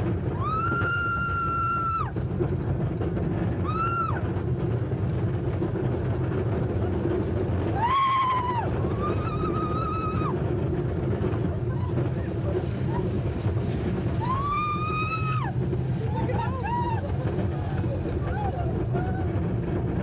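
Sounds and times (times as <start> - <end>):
roller coaster rumble: 0.0 - 20.0
riders screaming: 0.4 - 2.1, 7.7 - 10.4, 14.2 - 15.6.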